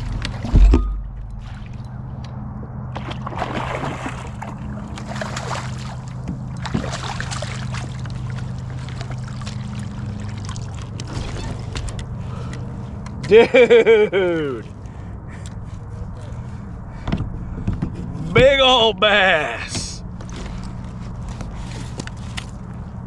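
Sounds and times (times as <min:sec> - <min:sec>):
water splashing against a kayak: 0:03.0 - 0:11.6.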